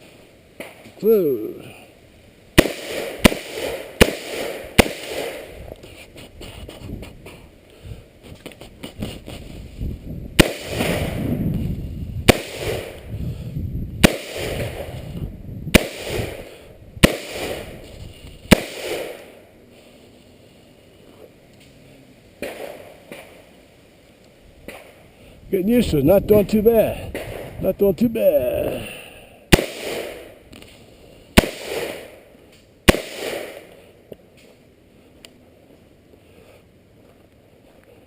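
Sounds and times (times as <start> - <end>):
gunshots with echo: 10.4 - 11.3, 29.5 - 30.3, 31.4 - 32.2, 32.9 - 33.7.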